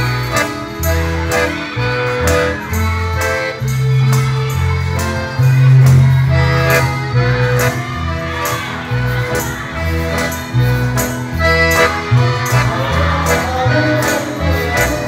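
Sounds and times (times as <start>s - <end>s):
accordion playing a tune: 0.0s - 15.0s
guitar accompaniment: 0.0s - 15.0s.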